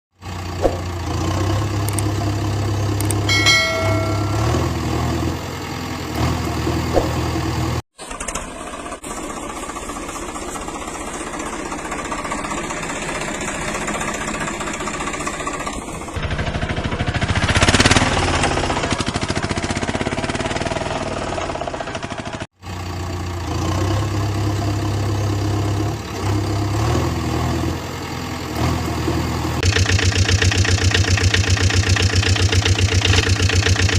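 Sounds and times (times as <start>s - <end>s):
rough loud cartoon engine: 0.2s - 9.8s, 11.2s - 33.9s
cartoon engine idling: 0.3s - 4.9s, 29.6s - 33.9s.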